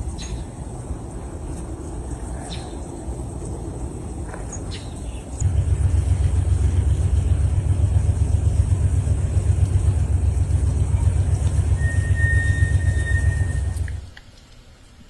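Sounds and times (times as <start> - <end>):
loud low rumble: 5.4 - 14.1
faint high steady tone: 10.2 - 14.2.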